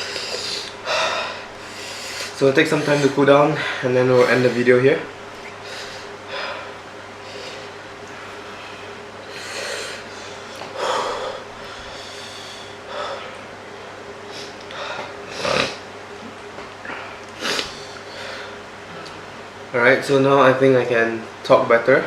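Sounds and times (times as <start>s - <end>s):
heavy breathing: 0.0s - 13.5s, 14.3s - 15.8s, 16.8s - 19.1s.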